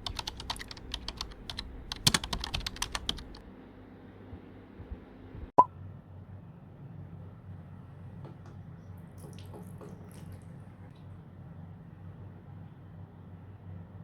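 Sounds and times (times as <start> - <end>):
keyboard key clicks: 0.0 - 3.4.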